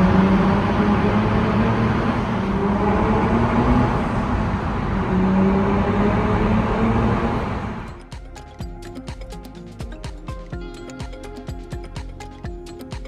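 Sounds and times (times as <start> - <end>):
car engine running: 0.0 - 8.0
road rush: 0.0 - 8.0
music: 7.9 - 13.0.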